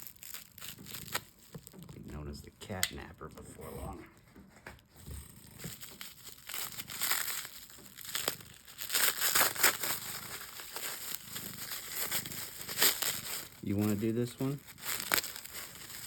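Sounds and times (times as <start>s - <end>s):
packing material crinkling: 0.0s - 3.2s, 4.2s - 16.0s.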